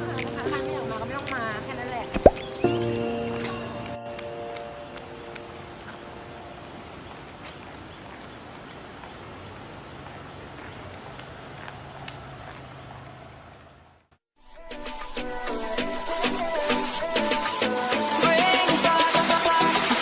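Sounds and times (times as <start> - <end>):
car road and engine noise: 9.4 - 14.0.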